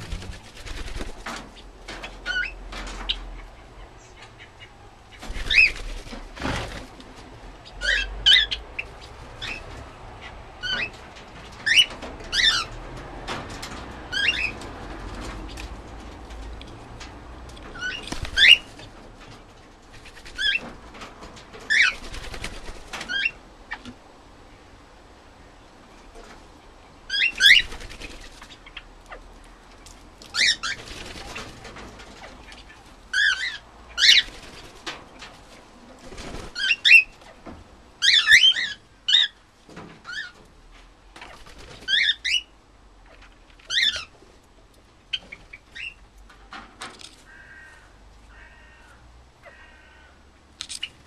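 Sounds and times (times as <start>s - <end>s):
birds chirping: 0.0s - 6.2s, 17.6s - 19.0s.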